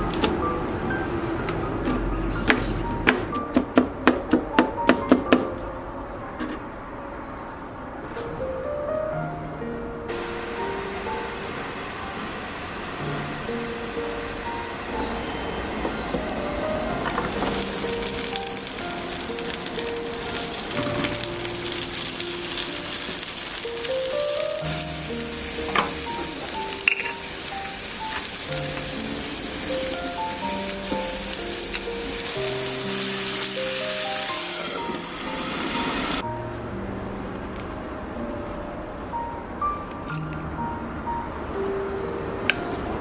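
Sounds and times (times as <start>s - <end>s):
food sizzling in a pan: 17.1s - 36.2s.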